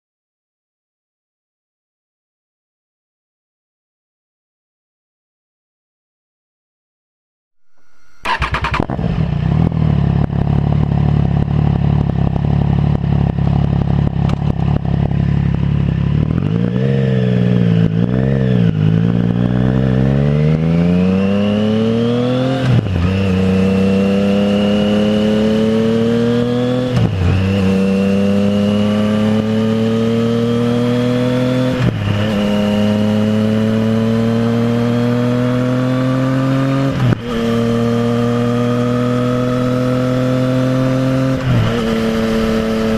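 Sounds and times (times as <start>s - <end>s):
motorcycle engine revving: 7.6s - 42.9s
motorcycle accelerating through gears: 7.7s - 42.9s.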